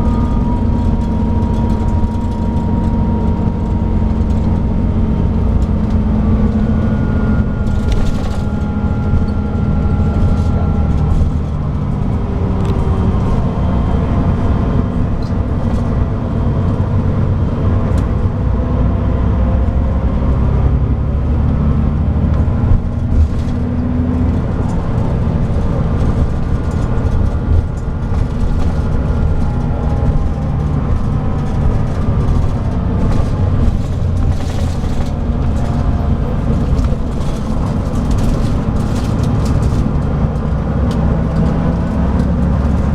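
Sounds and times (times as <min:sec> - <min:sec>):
diesel engine running: 0:00.0 - 0:42.9
road rumble: 0:00.0 - 0:42.9
knocks and rattles: 0:22.3 - 0:42.9.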